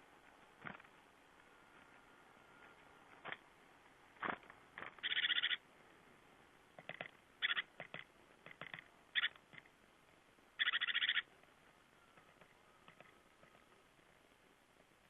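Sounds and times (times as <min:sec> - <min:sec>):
small songbirds calling: 0:05.0 - 0:05.6, 0:06.9 - 0:07.8, 0:09.1 - 0:09.4, 0:10.6 - 0:13.8.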